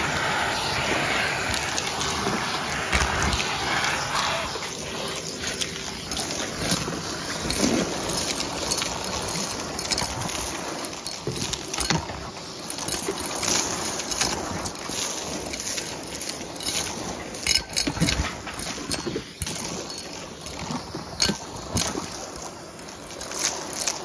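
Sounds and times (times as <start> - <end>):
vacuum cleaner running: 0.0 - 11.0
debris clicking in vacuum hose: 1.4 - 24.0.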